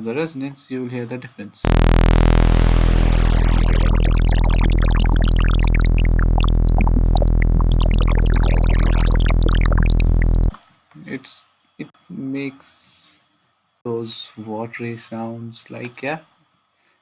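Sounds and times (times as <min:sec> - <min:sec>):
bubbly synth blips: 0:01.7 - 0:10.6
synthesizer sawtooth tone: 0:01.7 - 0:10.6.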